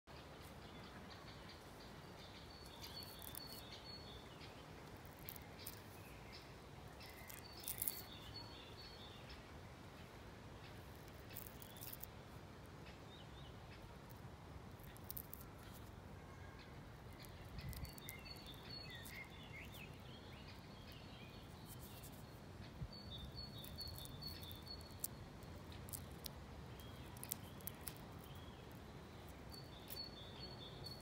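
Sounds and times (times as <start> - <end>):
small birds chirping: 0.1 - 31.0.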